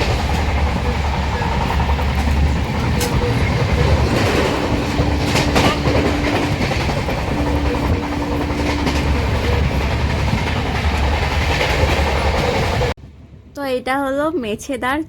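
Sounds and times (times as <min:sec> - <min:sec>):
train rumbling on rails: 0:00.0 - 0:14.9
steady held tone: 0:02.9 - 0:11.1.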